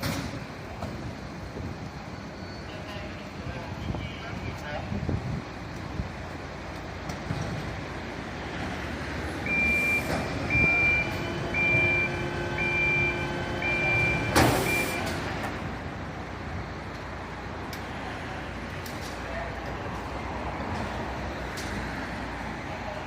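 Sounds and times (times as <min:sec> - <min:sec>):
truck engine running: 0:05.0 - 0:21.8
reversing alarm beeping: 0:09.4 - 0:15.2.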